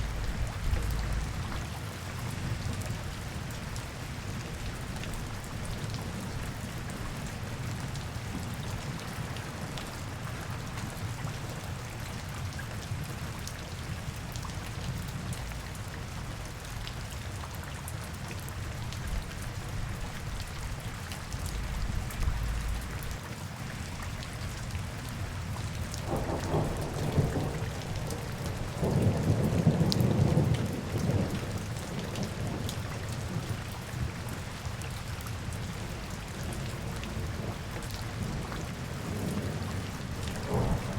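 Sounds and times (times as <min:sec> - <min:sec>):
low rumble: 0:00.0 - 0:01.6, 0:21.4 - 0:23.2
steady rain falling: 0:00.0 - 0:40.9.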